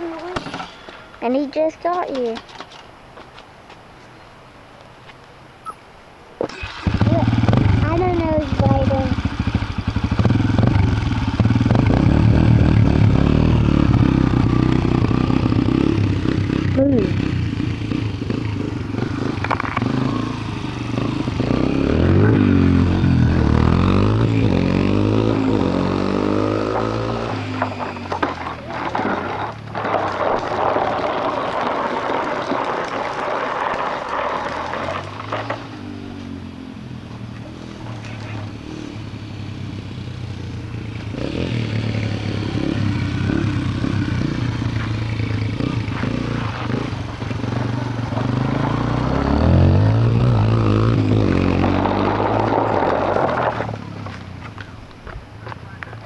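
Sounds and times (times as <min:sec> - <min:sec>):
dirt bike engine running: 0:06.7 - 0:28.8.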